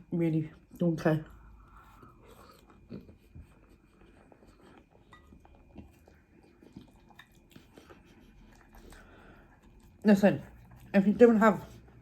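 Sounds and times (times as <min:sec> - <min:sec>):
soft eating clicks: 0:03.9 - 0:11.0.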